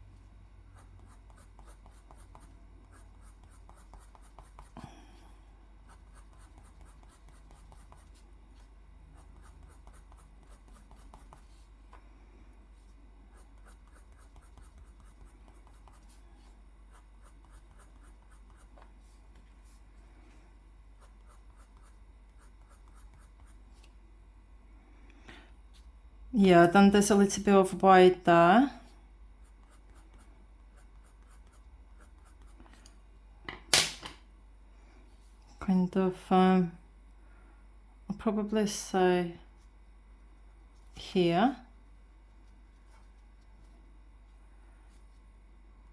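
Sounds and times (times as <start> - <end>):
drawing tool strokes on paper: 0.7 - 5.2, 5.8 - 11.9, 12.6 - 23.9, 29.4 - 32.8.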